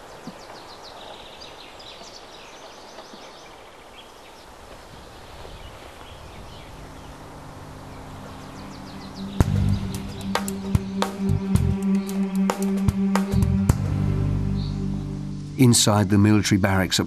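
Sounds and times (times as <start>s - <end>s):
steady outdoor hiss: 0.0s - 17.0s
wild birds calling: 0.0s - 17.0s
low sustained music tones: 6.0s - 17.0s.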